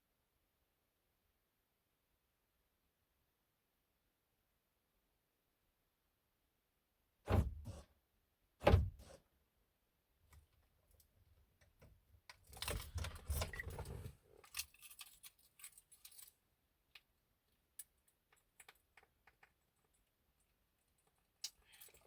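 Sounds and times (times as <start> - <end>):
keys jangling: 14.4 - 16.4.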